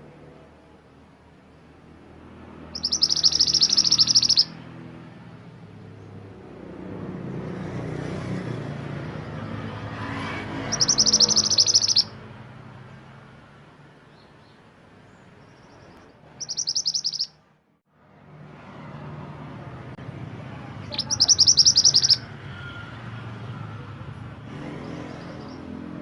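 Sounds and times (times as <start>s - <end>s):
songbird trilling: 2.7s - 4.6s, 10.6s - 12.2s, 15.4s - 17.4s, 20.8s - 22.3s.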